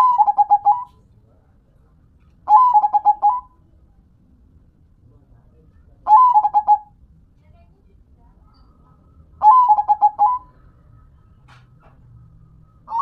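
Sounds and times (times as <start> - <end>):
dove cooing: 0.0 - 1.0, 2.5 - 3.5, 6.1 - 6.9, 9.4 - 10.6.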